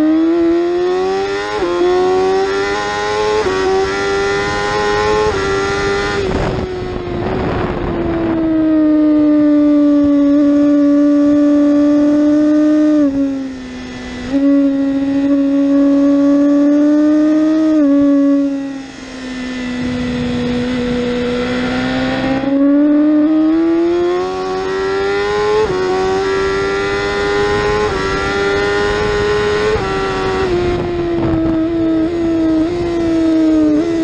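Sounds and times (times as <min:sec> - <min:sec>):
motorcycle engine accelerating: 0:00.0 - 0:34.0
wind noise: 0:00.4 - 0:34.0.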